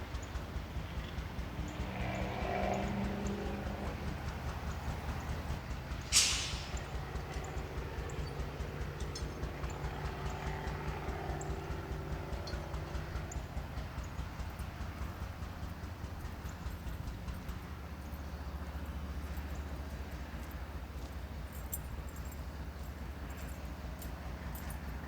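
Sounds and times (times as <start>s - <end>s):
diesel locomotive throbbing: 0.0s - 25.0s
air release hiss: 6.1s - 6.9s.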